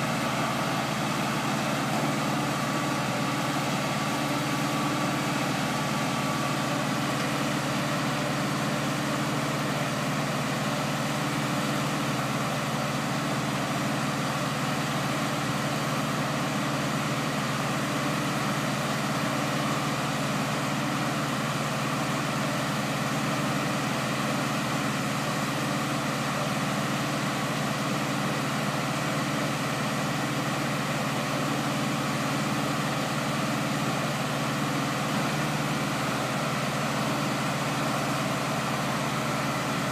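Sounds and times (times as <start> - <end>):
engine humming: 0.0 - 10.1.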